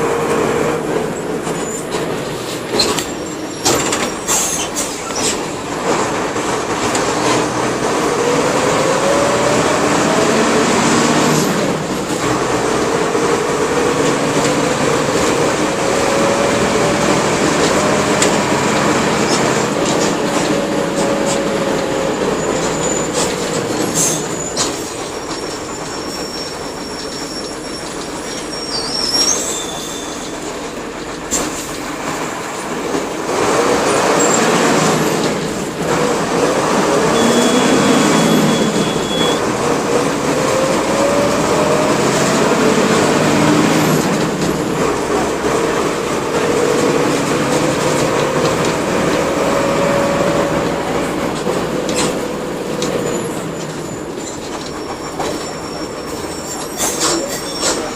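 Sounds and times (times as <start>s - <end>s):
bus diesel engine running: 0.0s - 57.9s
brief high squeaks: 22.4s - 30.4s, 37.1s - 39.4s, 53.0s - 57.9s.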